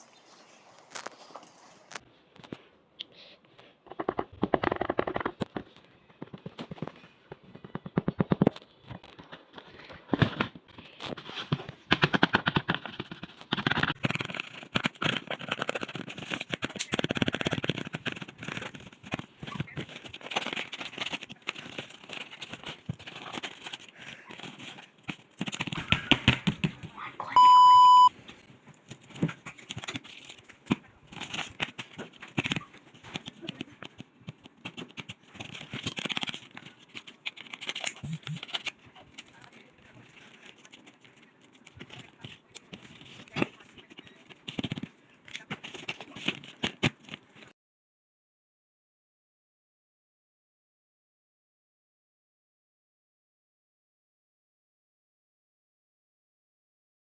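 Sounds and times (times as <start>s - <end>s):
short electronic beep: 27.3s - 28.1s.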